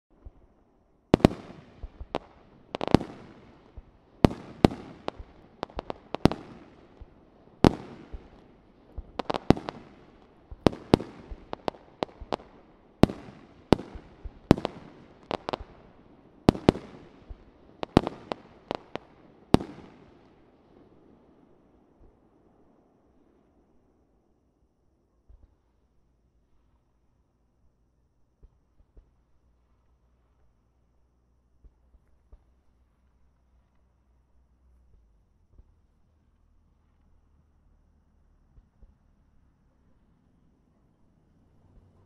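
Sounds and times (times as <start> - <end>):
fireworks bursting with echo: 0.1 - 23.5.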